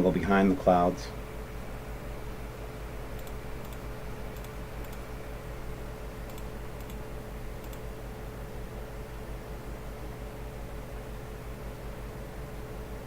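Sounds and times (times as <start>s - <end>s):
electrical hum: 0.0s - 13.0s
room hiss: 0.0s - 13.0s
computer mouse clicks: 3.2s - 5.1s, 6.2s - 7.9s.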